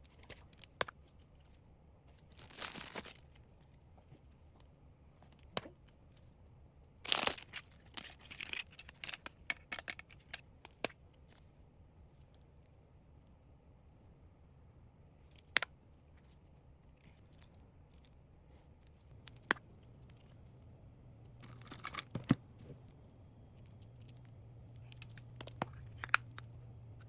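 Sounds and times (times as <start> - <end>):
small items handled and set down: 2.1 - 3.4, 7.1 - 11.0, 21.3 - 23.0
packaging crinkling: 2.3 - 3.2, 7.1 - 9.2.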